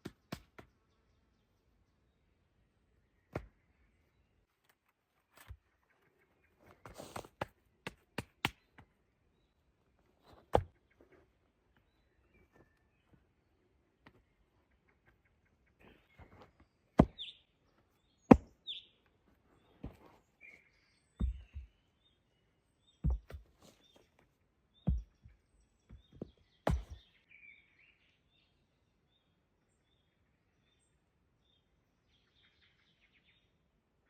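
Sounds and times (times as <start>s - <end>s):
small birds chirping: 0.0s - 34.0s
tool striking wood: 18.3s - 18.5s, 26.7s - 27.0s.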